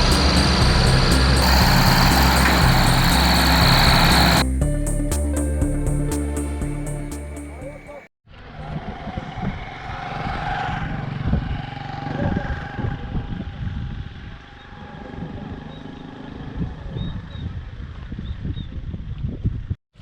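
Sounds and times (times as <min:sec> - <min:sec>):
tractor engine running: 0:00.0 - 0:07.6.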